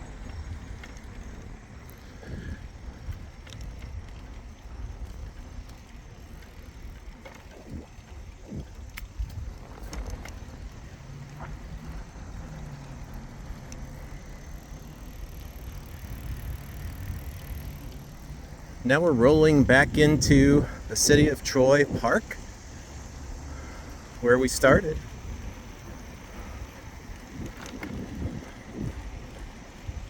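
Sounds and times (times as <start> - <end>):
bicycle tyres rolling: 0.0 - 30.0
wind rumbling on microphone: 0.0 - 30.0
light clicks and rattles: 0.1 - 18.4, 25.7 - 29.7.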